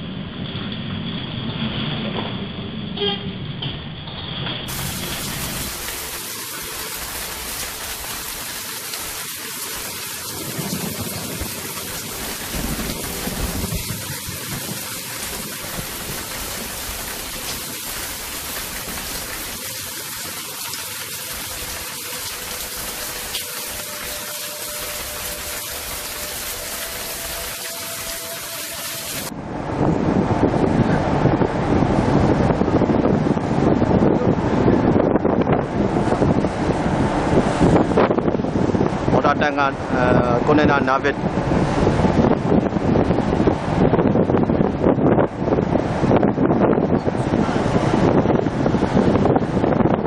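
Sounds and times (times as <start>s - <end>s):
heavy rain hissing: 4.7s - 29.3s.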